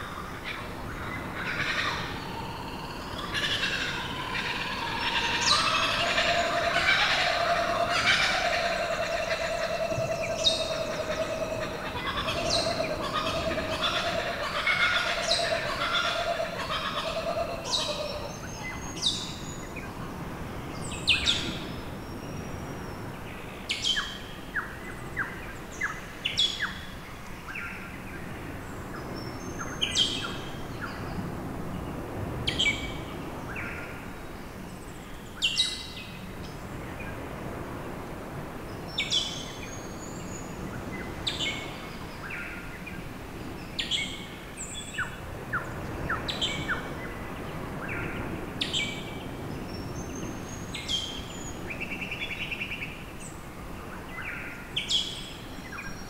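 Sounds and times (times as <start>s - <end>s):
birds chirping: 0.6s - 19.4s.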